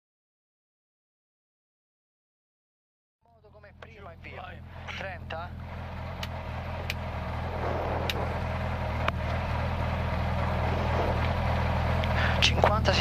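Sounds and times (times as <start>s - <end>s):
car engine idling: 3.3s - 13.0s
sharp clicks: 6.2s - 8.3s.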